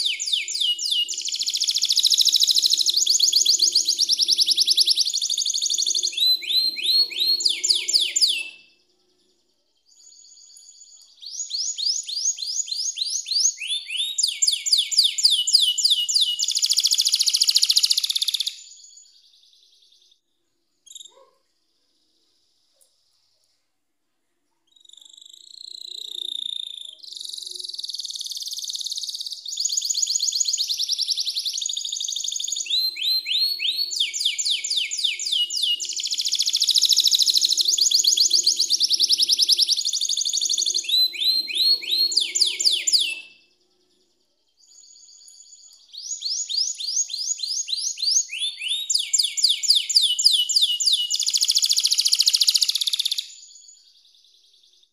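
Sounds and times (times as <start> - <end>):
canary short chirp: 0.0 - 8.8, 24.7 - 43.5
canary singing trills: 0.0 - 20.2, 20.8 - 21.4, 24.6 - 54.9.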